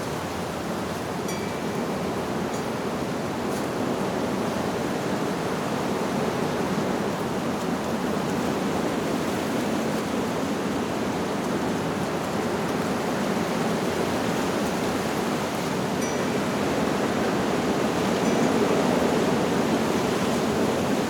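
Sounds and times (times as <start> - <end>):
wind rushing through leaves: 0.0 - 21.0
wind chimes tinkling: 1.2 - 2.9, 15.9 - 20.6.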